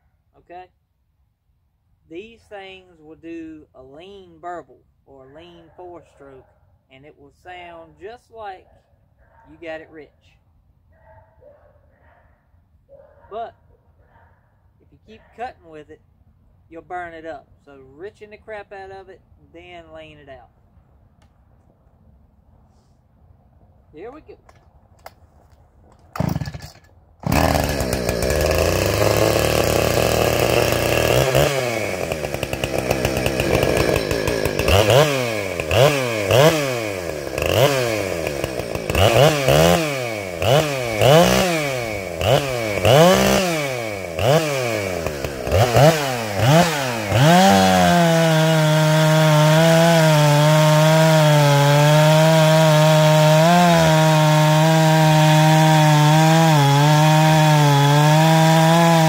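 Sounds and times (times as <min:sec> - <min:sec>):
chainsaw revving: 0:26.1 - 0:59.0.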